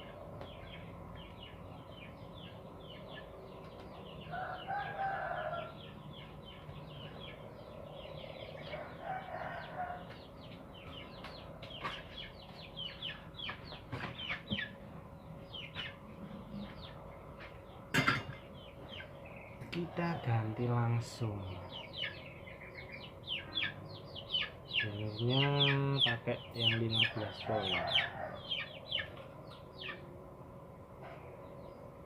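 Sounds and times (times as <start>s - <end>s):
small birds chirping: 0.0s - 30.2s
rooster crowing: 4.2s - 5.9s, 8.6s - 10.2s, 27.0s - 29.0s.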